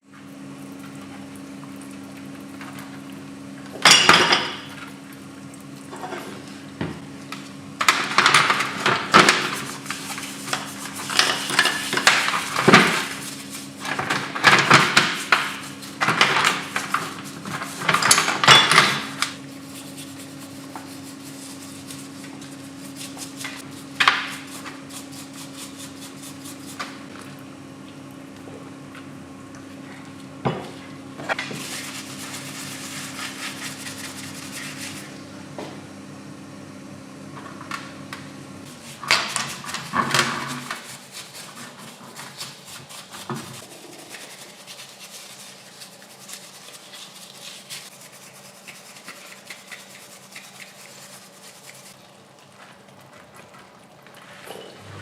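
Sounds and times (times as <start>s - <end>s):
low machine hum: 0.0s - 39.0s, 52.0s - 55.0s.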